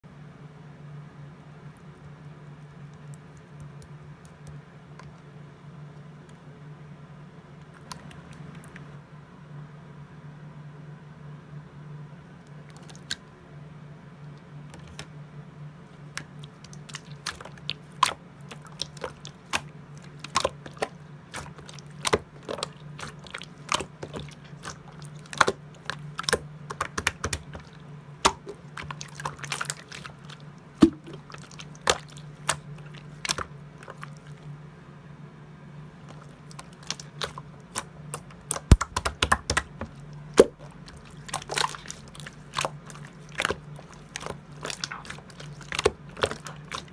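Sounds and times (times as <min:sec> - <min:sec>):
steady low hum: 0:00.0 - 0:46.9
slime clicking and popping: 0:16.1 - 0:34.0, 0:36.5 - 0:46.9.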